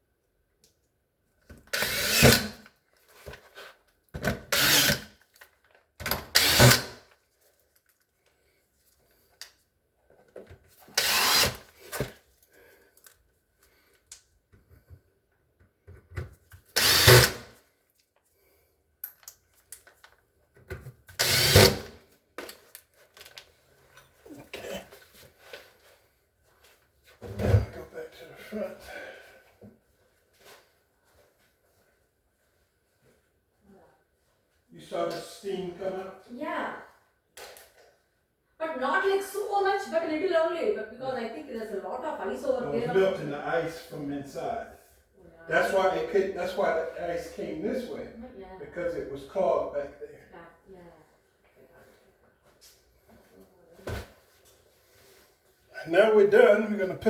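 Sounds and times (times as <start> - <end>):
power drill bursts: 1.7 - 2.6, 4.5 - 5.0, 6.2 - 7.0, 10.9 - 11.6, 16.8 - 17.5, 21.2 - 21.9.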